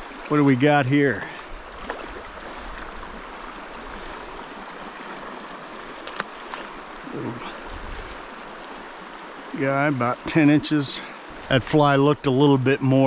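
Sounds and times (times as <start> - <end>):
creek running over rocks: 0.0 - 13.0.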